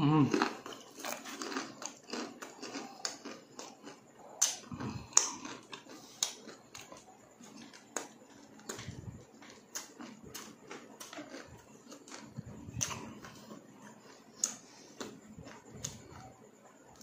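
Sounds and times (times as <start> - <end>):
crunchy chewing: 0.0 - 17.0.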